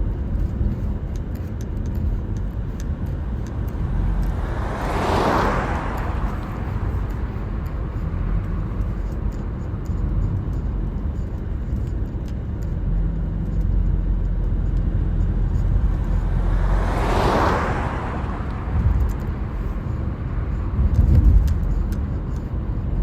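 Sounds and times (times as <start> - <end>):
car road and engine rumble: 0.0 - 23.0
vehicle whooshing past: 3.8 - 7.7, 15.6 - 21.4.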